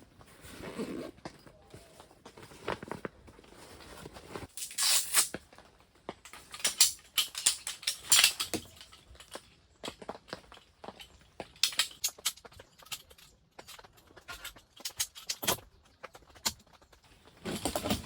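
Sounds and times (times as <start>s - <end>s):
rustling and tearing packaging: 0.2s - 9.0s.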